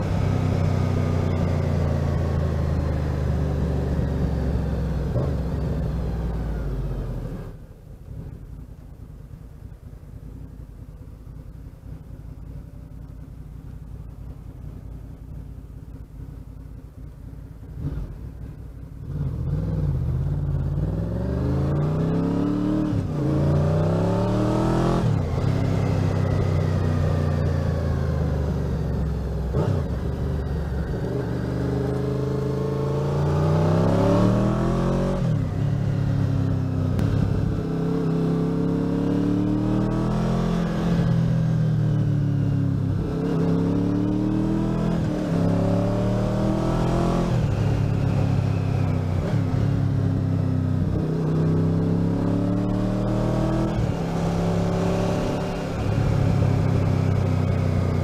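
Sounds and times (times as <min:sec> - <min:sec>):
motorcycle accelerating through gears: 0:00.0 - 0:08.6, 0:17.5 - 0:58.0
motorcycle engine idling: 0:07.6 - 0:19.1.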